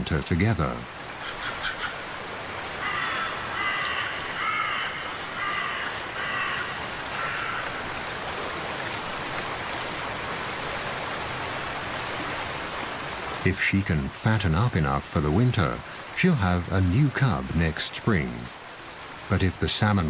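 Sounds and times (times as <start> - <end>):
bird cawing: 1.2 - 8.0.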